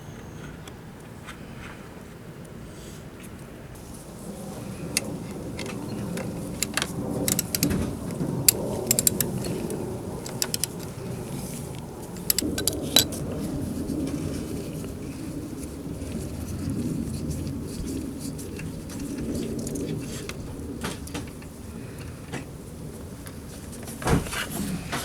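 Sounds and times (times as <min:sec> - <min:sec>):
low rustling of handling: 0:03.8 - 0:25.0
metallic clicks of tools and bolts: 0:04.9 - 0:10.9, 0:12.2 - 0:13.2.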